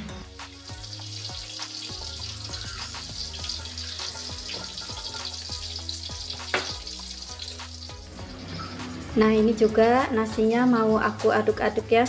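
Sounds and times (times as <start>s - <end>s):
background music: 0.0s - 12.0s
deep-frying sizzle in oil: 0.2s - 9.2s.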